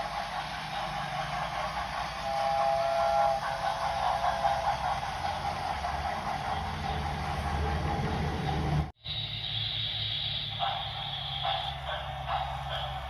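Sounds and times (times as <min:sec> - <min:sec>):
model train rumbling on track: 0:00.0 - 0:13.0
whistle-like tone: 0:00.8 - 0:05.8, 0:09.0 - 0:13.0.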